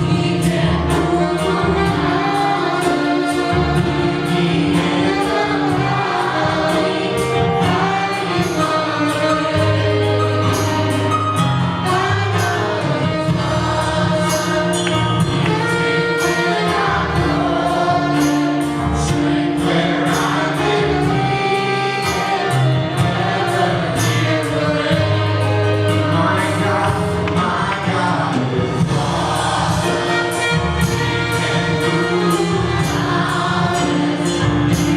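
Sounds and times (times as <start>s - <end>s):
bass line: 0.0s - 34.9s
percussion hits: 0.0s - 34.9s
voices singing long notes: 0.0s - 34.9s.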